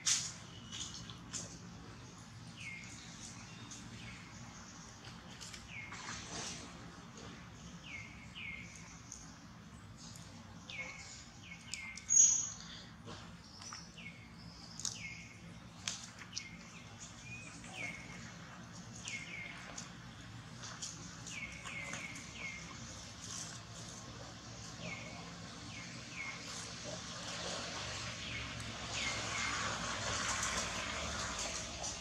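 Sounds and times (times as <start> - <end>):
small bird chirping: 10.1 - 12.7.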